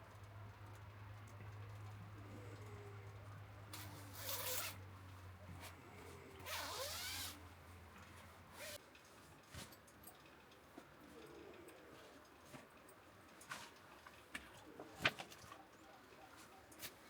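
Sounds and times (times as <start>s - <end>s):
zipper being pulled: 3.8s - 4.8s, 6.4s - 7.4s, 8.5s - 8.8s.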